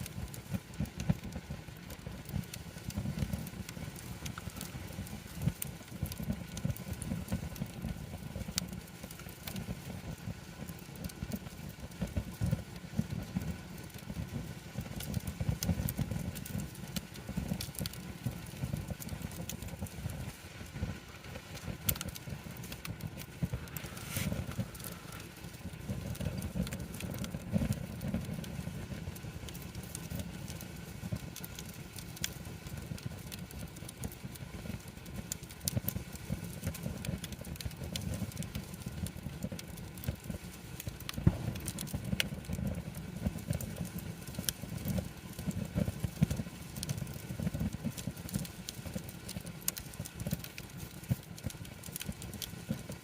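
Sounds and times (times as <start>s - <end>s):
campfire crackling: 0.0s - 53.0s
low rumble: 41.2s - 41.8s.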